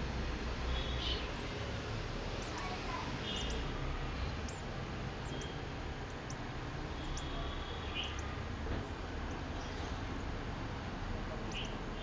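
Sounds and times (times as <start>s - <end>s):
high thin bird chirps: 2.4s - 8.3s.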